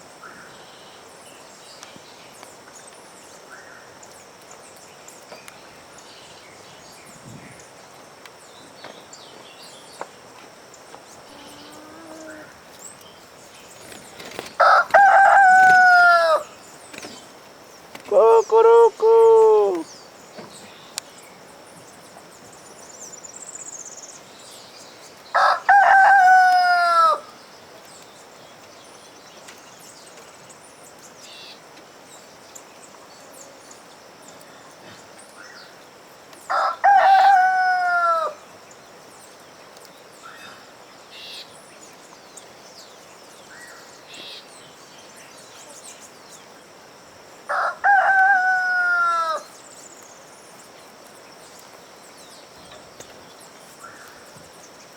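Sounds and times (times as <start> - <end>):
rooster crowing: 14.6 - 16.6, 25.4 - 27.3, 36.5 - 38.4, 47.5 - 49.5.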